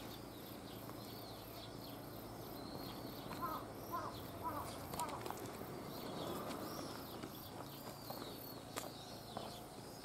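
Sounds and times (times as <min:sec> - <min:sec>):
birds chirping: 0:00.0 - 0:10.0
light footsteps: 0:04.6 - 0:10.0.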